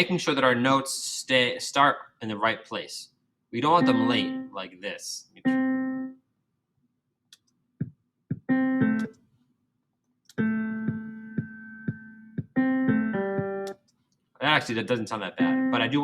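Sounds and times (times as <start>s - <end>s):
piano chords: 3.7s - 4.6s, 5.4s - 6.1s, 8.3s - 9.1s, 10.4s - 13.8s, 15.4s - 16.0s
drum hits: 8.3s - 9.0s, 10.4s - 13.7s.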